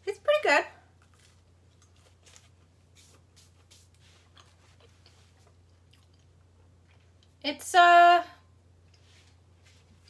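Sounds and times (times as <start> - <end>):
chewing toasted sandwich crunches: 1.0 - 2.7, 4.3 - 7.4.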